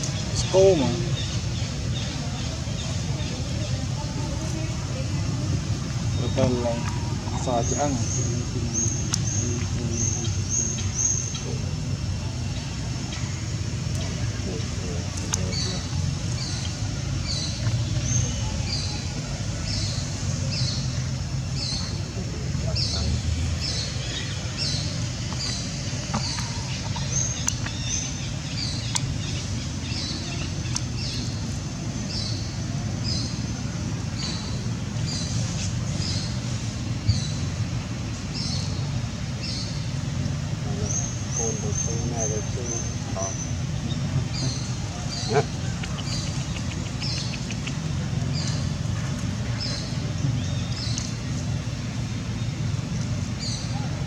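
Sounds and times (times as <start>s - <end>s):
steady low rumble: 0.0s - 54.0s
bird chirping: 38.3s - 54.0s
sharp clicks: 45.7s - 48.6s.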